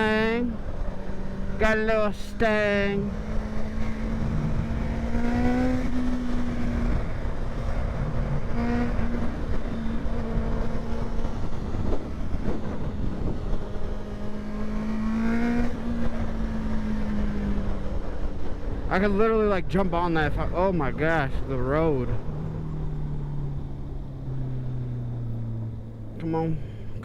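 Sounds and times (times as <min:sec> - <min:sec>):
wind rush on microphone: 0:00.0 - 0:19.5
motorcycle engine accelerating: 0:00.0 - 0:27.0.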